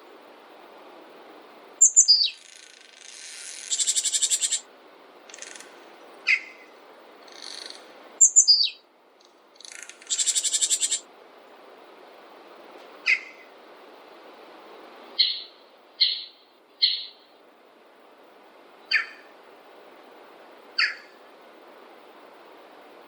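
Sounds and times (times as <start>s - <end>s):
soft steady hiss: 0.0s - 23.0s
high-pitched bird trills: 1.8s - 4.6s, 6.3s - 6.7s, 7.3s - 8.8s, 9.6s - 11.0s, 13.1s - 13.4s, 15.2s - 17.3s, 18.9s - 19.2s, 20.8s - 21.1s
songbirds calling: 1.8s - 11.1s, 12.9s - 13.6s, 15.1s - 17.4s, 18.7s - 19.4s, 20.7s - 21.3s.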